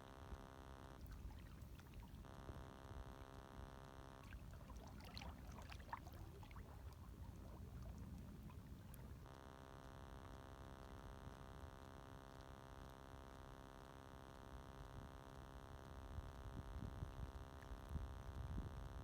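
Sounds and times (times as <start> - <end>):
water splashes and trickles: 1.0 - 2.3, 4.1 - 9.3
small waves lapping: 4.2 - 9.3.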